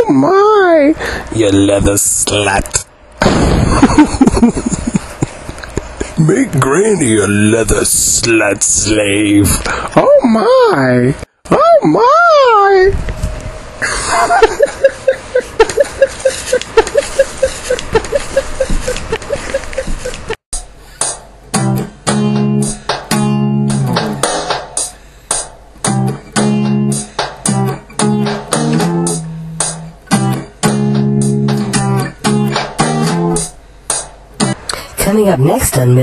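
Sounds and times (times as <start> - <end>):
fast picked guitar notes: 21.5 - 24.5, 25.8 - 33.5
loud stop-start guitar chords: 21.5 - 24.9, 25.8 - 33.5.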